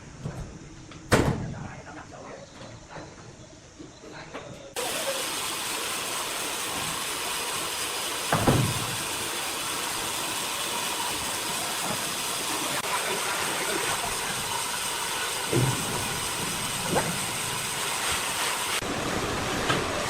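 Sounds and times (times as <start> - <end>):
sawmill machinery hissing: 4.8 - 20.0
heavy thump: 8.3 - 9.0.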